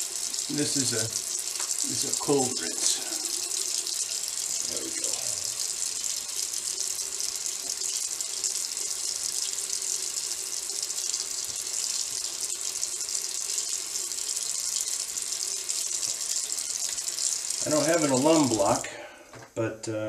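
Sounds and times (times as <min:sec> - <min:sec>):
tap running into a sink: 0:00.2 - 0:04.0.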